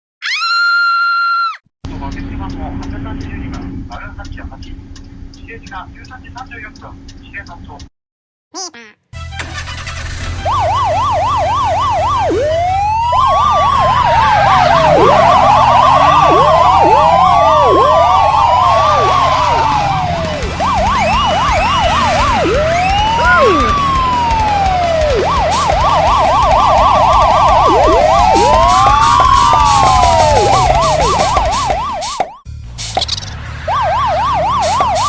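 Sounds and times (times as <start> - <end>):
low engine rumble: 1.9 - 7.9, 9.4 - 35.0
siren fast yelp: 9.6 - 32.4, 33.7 - 35.0
siren wailing: 9.6 - 32.4, 33.6 - 35.0.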